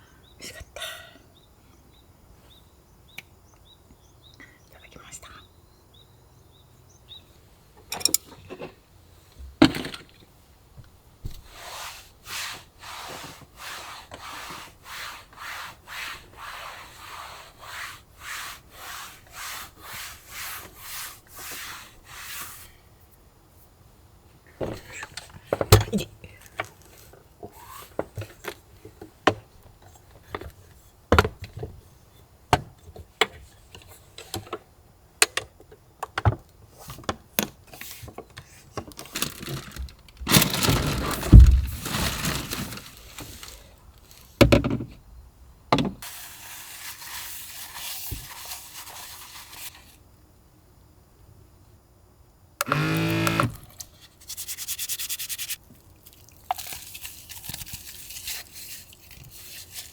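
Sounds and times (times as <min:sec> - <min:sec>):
objects being handled: 0:07.9 - 0:08.8, 0:36.8 - 0:45.0
steady hiss: 0:11.3 - 0:25.7, 0:45.4 - 0:50.8
rustling scrape: 0:11.4 - 0:22.7, 0:39.1 - 0:44.4, 0:46.0 - 0:50.0, 0:57.4 - 0:59.9.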